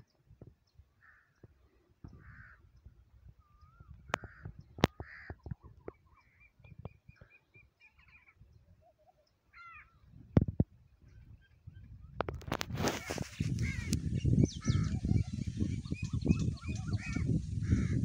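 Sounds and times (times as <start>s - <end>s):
low wind-like rumble: 9.9s - 18.0s
harsh bird calls: 12.8s - 18.0s.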